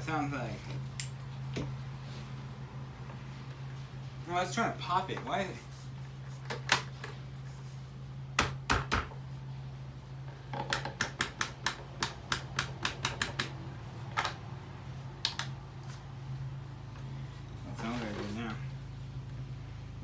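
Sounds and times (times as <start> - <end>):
fan clicking and knocking: 6.3 - 7.2, 8.4 - 9.2, 10.3 - 14.5, 15.2 - 15.6.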